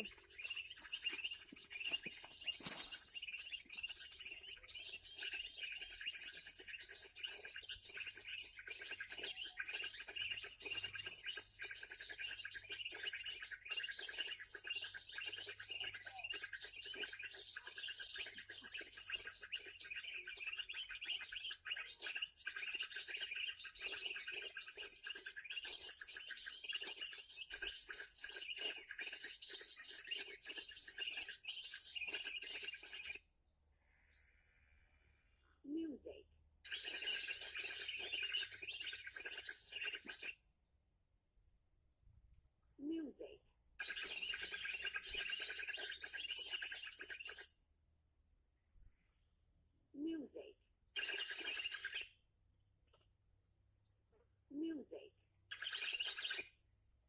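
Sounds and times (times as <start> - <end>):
bird calls through small speaker: 0.0 - 3.1
bird chirps through small speaker: 0.0 - 7.6
brief rustle: 0.5 - 3.2.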